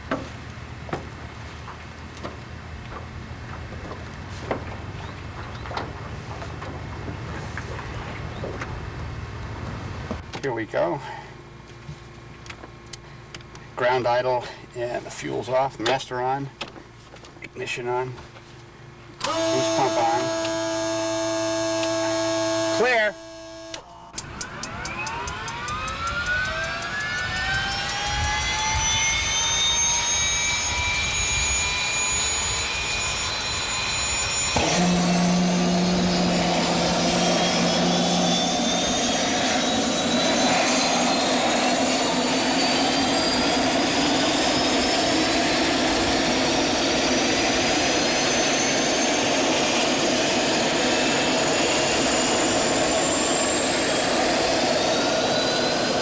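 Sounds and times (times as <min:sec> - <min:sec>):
turbine engine whine: 0:00.0 - 0:56.0
low hum: 0:17.8 - 0:56.0.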